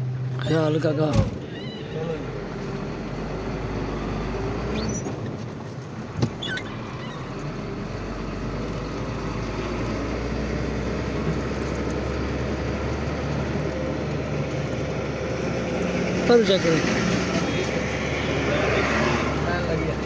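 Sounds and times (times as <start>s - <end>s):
truck engine running: 0.0s - 20.0s
high squeaks: 1.3s - 2.2s, 4.8s - 5.2s, 6.3s - 7.5s.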